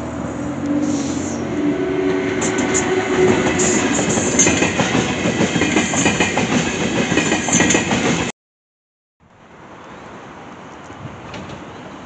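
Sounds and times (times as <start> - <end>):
train wheels clickety-clack: 2.4 - 8.3.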